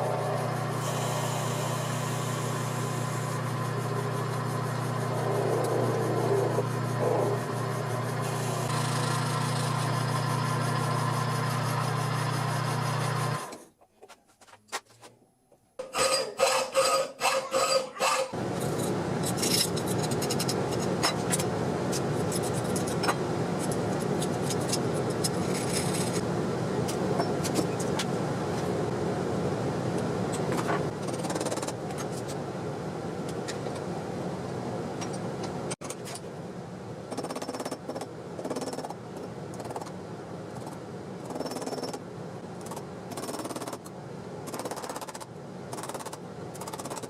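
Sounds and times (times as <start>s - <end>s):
power tool running: 0.0s - 13.6s.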